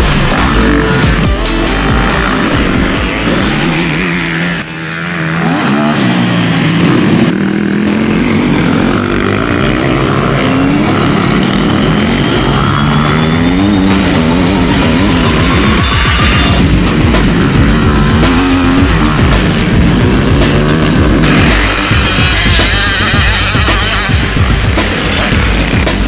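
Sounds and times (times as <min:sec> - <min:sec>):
motocross engines revving: 0:00.0 - 0:26.0.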